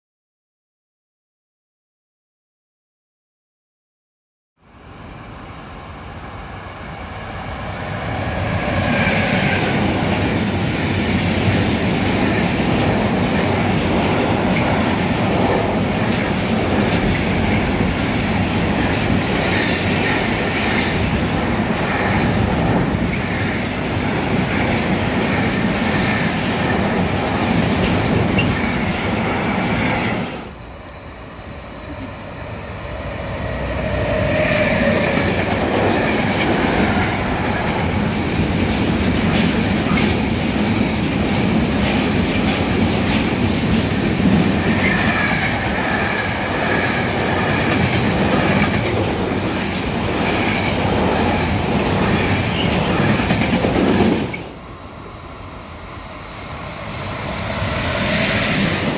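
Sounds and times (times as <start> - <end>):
freight train approaching: 4.6 - 58.9
freight train wagons rumbling: 7.4 - 58.9
wheels clicking over rail joints: 46.4 - 54.6.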